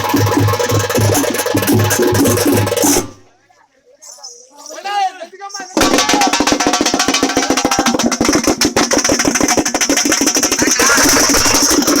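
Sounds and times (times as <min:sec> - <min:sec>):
frame drums beaten fast: 0:00.0 - 0:03.2, 0:05.8 - 0:12.0.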